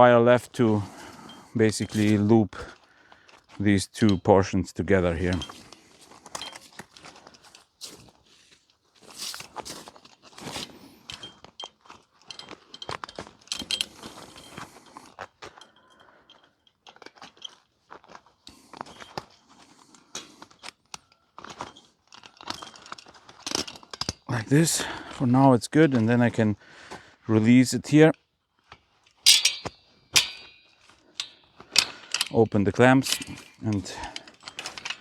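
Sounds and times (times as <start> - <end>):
barbed wire scraping and clicking: 0.6 - 2.7, 5.0 - 8.2, 9.0 - 24.6, 29.0 - 35.0.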